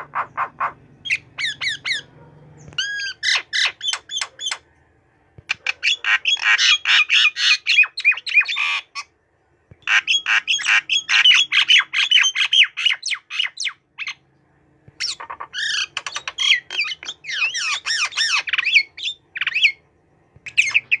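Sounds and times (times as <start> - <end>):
bird singing chattering notes: 0.0 - 4.6, 15.0 - 19.8, 20.4 - 21.0.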